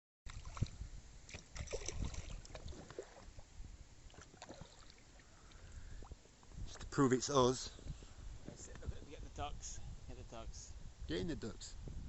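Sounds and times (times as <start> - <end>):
paddle splashing water: 0.3 - 6.3.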